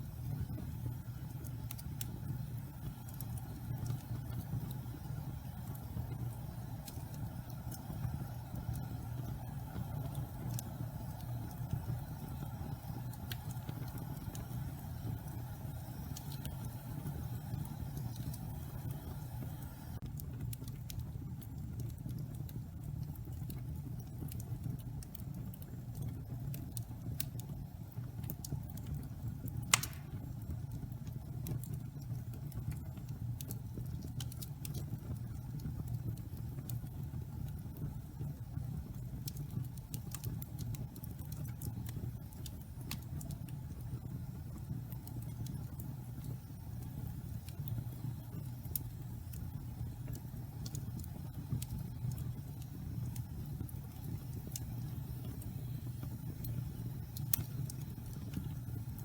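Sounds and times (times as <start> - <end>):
fire crackling: 0.0 - 59.0
low rumble of fire: 0.0 - 59.0
loud sharp pop: 29.7 - 30.2.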